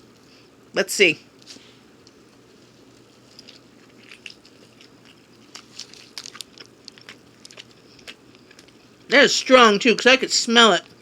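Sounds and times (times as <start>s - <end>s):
person chewing food: 2.0s - 9.1s.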